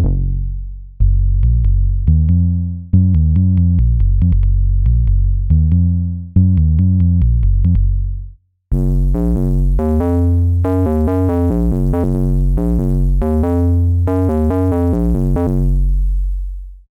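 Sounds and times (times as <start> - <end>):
deep sustained synth bass: 0.0 - 16.9
synthesizer melodic phrase: 8.8 - 15.8.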